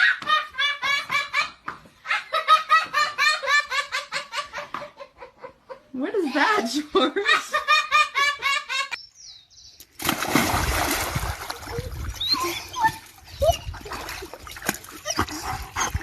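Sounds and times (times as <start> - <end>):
people laughing: 0.0 - 5.9
water splashing: 9.9 - 16.0.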